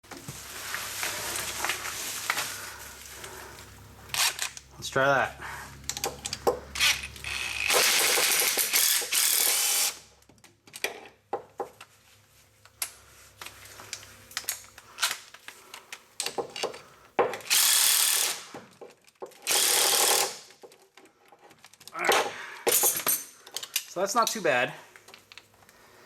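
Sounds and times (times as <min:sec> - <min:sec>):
ratchet clicking: 0:05.9 - 0:10.0, 0:17.4 - 0:18.5, 0:19.4 - 0:20.5.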